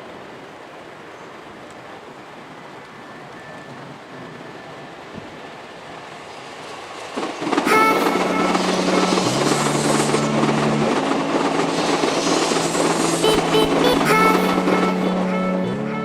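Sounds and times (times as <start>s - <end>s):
train rushing over points: 6.2s - 16.0s.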